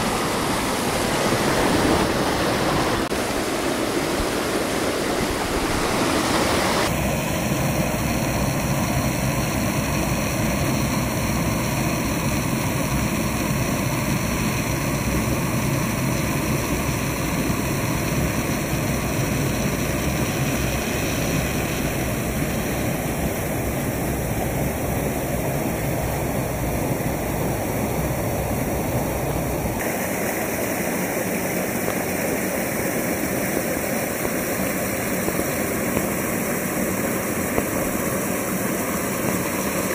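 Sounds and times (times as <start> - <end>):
water rushing over rocks: 0.0 - 9.8, 10.4 - 39.9.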